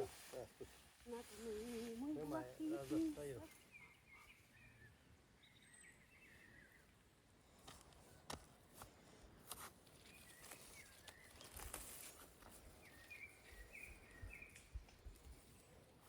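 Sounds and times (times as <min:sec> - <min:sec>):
small bird chirping: 0:10.0 - 0:15.2.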